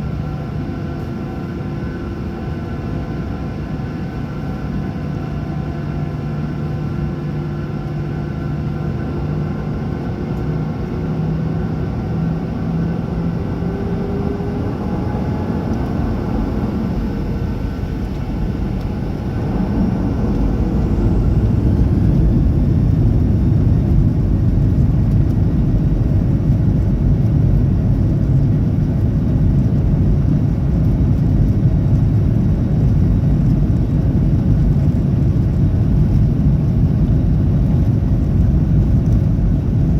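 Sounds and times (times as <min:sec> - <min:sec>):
jet engines roaring: 0:08.8 - 0:39.8.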